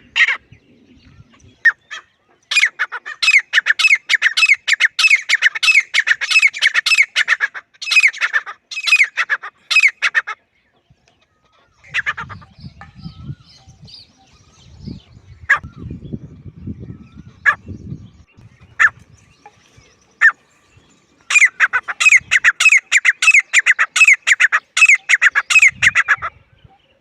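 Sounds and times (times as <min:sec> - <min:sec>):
bird giving harsh calls: 0:01.6 - 0:10.4, 0:18.6 - 0:19.1, 0:20.2 - 0:20.5, 0:21.2 - 0:26.4.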